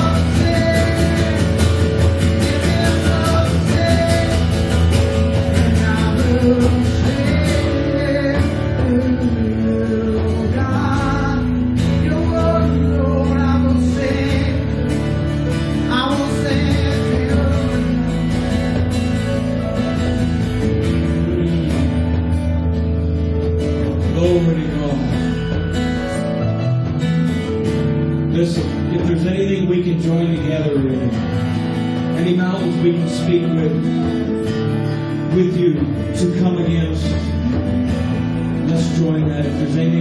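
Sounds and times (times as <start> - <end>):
person singing: 0.0 - 19.4, 20.8 - 22.6
guitar: 0.0 - 40.0
worship band playing rock song: 0.0 - 40.0.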